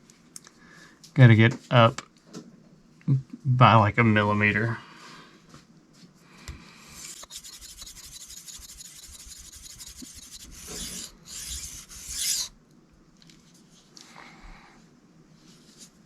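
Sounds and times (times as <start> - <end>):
knife scraping on whetstone: 7.0 - 12.5.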